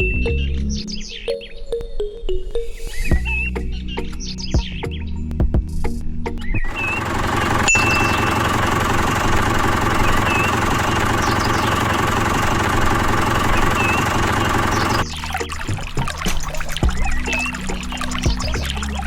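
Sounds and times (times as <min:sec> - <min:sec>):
small engine running: 0:06.7 - 0:15.0.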